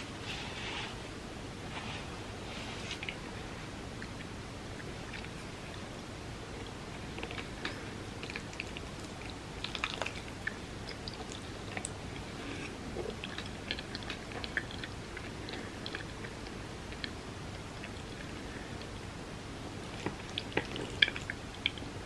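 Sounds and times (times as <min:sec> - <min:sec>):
background hiss: 0:00.0 - 0:22.0
wet chewing: 0:06.6 - 0:17.2, 0:19.8 - 0:21.9.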